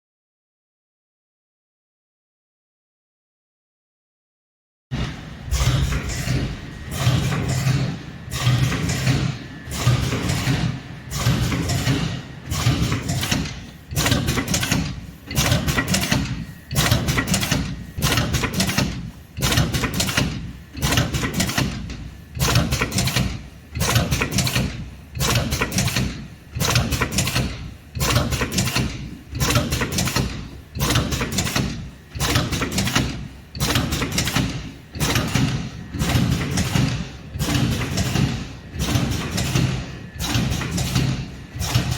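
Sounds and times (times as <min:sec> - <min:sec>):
packing machine running: 0:04.9 - 0:41.9.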